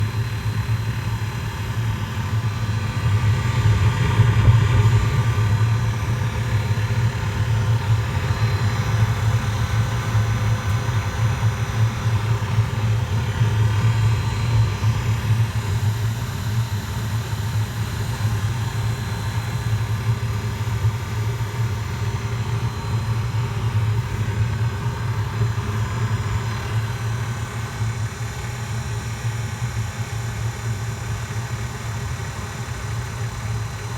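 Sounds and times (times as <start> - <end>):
air heater humming: 0.0 - 33.9.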